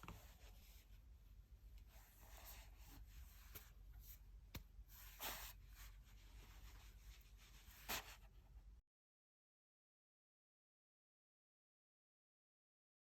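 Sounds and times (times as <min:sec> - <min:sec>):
quiet room hiss: 0:00.0 - 0:08.8.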